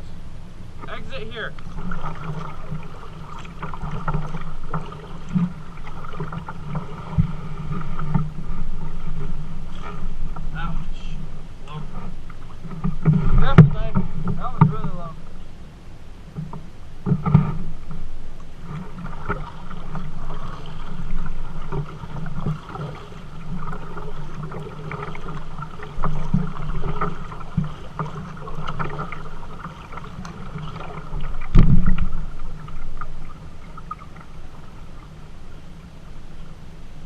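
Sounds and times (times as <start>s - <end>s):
paddle strokes splashing: 0.0s - 37.0s
water drips: 18.4s - 35.2s.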